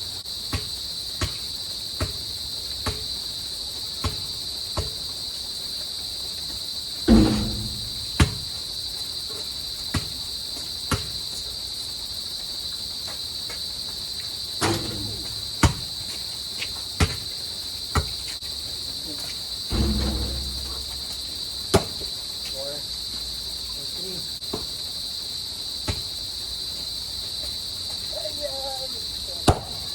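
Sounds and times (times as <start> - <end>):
insect chorus: 0.0 - 29.9
basketball bouncing on court: 7.1 - 8.4.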